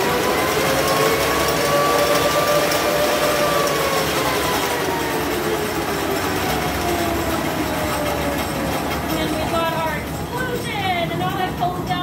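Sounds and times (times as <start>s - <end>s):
rail vehicle rumble: 0.0s - 12.0s.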